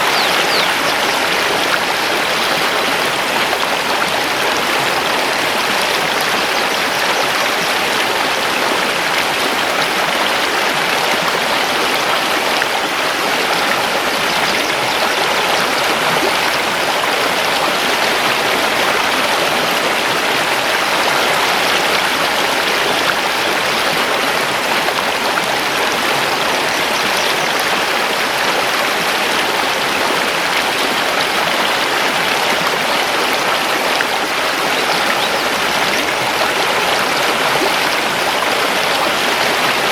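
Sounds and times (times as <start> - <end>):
river rushing over stones: 0.0 - 39.9.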